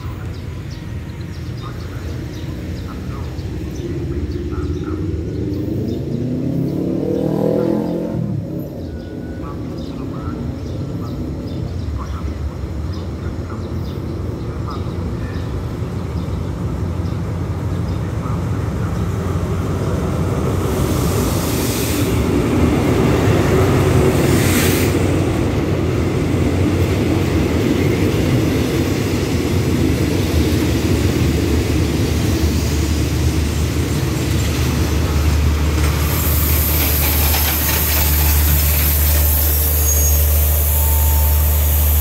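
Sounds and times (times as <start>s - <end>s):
diesel locomotive engine rumble: 0.0s - 42.0s
train coaches clattering: 8.7s - 42.0s
air hissing: 35.8s - 42.0s
air brakes hissing: 35.9s - 42.0s.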